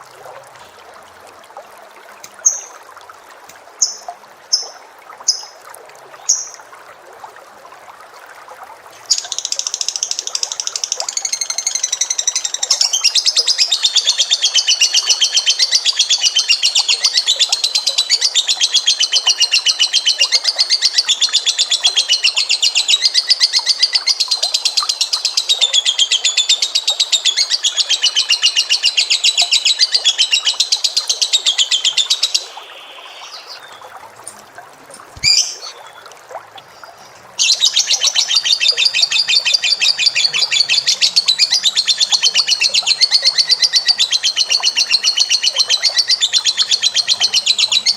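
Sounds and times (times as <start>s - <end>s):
bird trilling: 35.2s - 36.0s.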